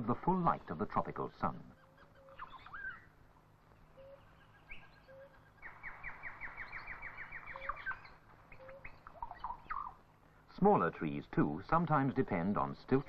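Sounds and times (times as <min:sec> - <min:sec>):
low whistled bird notes: 0:03.8 - 0:10.0
bird trill of falling notes: 0:04.0 - 0:10.0.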